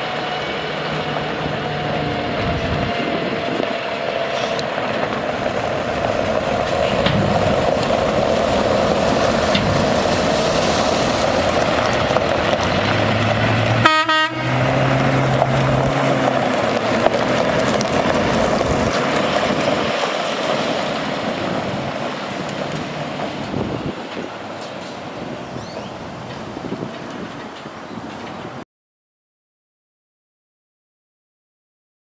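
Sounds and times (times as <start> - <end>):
diesel truck engine running: 0.0 - 28.6
truck horn blast: 13.4 - 16.3.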